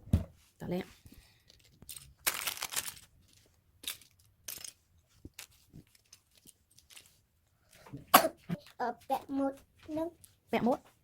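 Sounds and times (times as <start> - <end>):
plastic pieces rustling: 1.1 - 7.8
plastic pieces clicking and rattling: 1.4 - 7.8.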